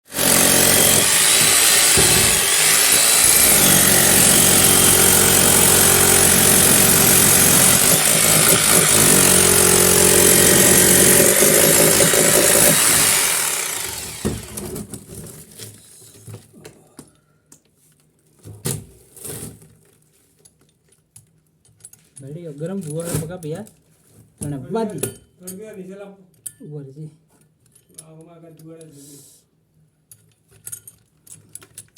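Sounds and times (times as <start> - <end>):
electric hammer drill running: 0.1 - 14.7.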